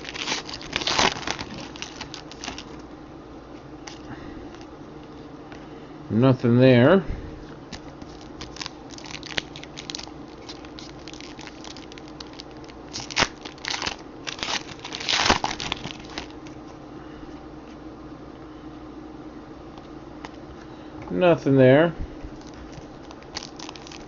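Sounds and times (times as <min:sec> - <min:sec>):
foil wrappers crinkling and tearing: 0:00.0 - 0:02.8, 0:07.7 - 0:16.4, 0:22.3 - 0:24.0
low room hum: 0:00.0 - 0:24.0.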